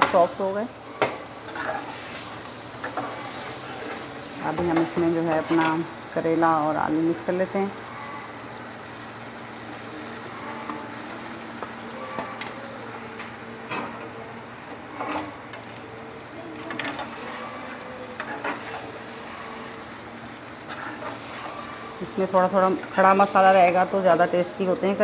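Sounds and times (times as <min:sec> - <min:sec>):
vegetables sizzling in a pan: 0:00.0 - 0:25.0
metal spatula scraping a pan: 0:00.1 - 0:05.9, 0:10.2 - 0:11.0, 0:14.7 - 0:15.4, 0:16.6 - 0:19.9, 0:20.6 - 0:22.2.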